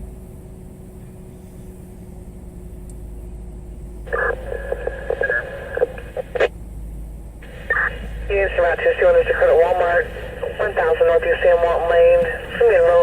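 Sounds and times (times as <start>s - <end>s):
garbled police radio transmission: 4.1s - 6.5s, 7.4s - 13.0s.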